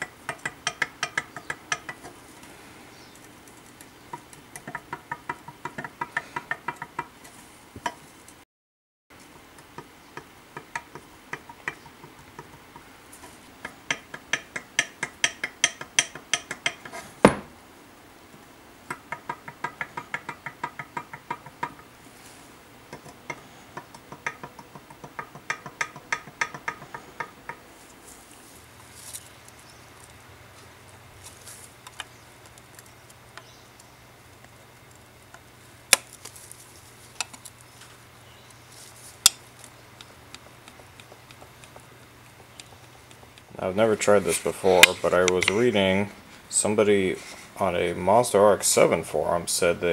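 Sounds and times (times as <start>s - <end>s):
steel rule tapping on metal: 0.0s - 2.2s, 4.1s - 7.1s, 9.6s - 17.5s, 18.9s - 21.8s, 22.9s - 27.6s
loud knock: 17.2s - 17.5s.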